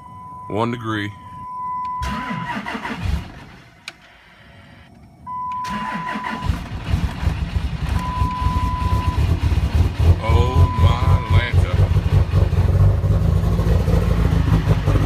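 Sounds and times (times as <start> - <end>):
dashboard chime beeping: 0.0 - 2.0, 10.2 - 11.6
diesel engine cranking and starting: 1.7 - 4.3, 5.3 - 15.0.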